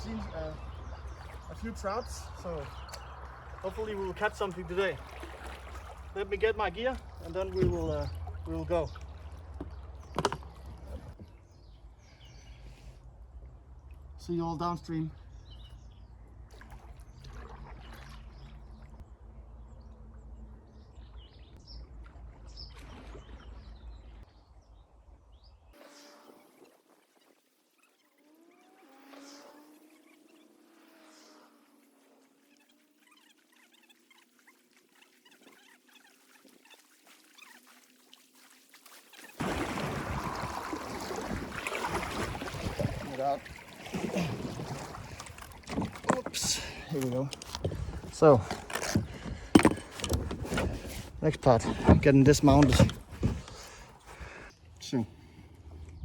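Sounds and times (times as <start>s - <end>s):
rushing water: 0.0s - 11.2s, 33.3s - 55.0s
small birds chirping: 0.0s - 13.0s, 14.2s - 19.0s, 42.4s - 56.0s
wind buffeting microphone: 39.6s - 43.6s, 44.4s - 54.5s.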